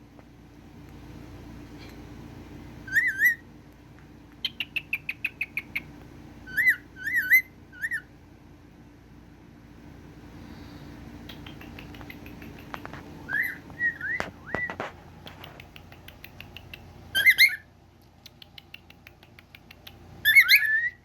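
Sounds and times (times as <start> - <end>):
cockatiel chirps: 2.8 - 3.4, 4.4 - 8.1, 11.3 - 14.9, 15.9 - 17.7, 20.2 - 21.0
cockatiel warbling whistles: 2.9 - 3.4, 13.3 - 14.8, 17.2 - 17.6, 20.2 - 21.0.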